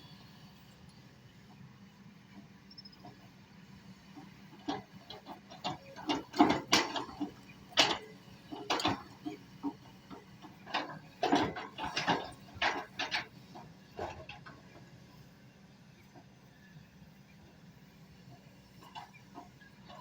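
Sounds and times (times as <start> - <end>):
excavator knocks and clatters: 4.1 - 14.9.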